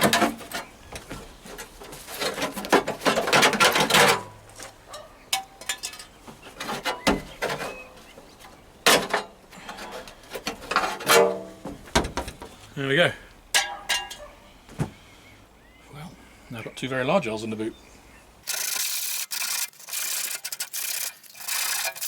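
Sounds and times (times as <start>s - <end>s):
sheet steel clattering and knocking: 0.0s - 7.9s, 8.8s - 12.6s, 13.5s - 14.9s.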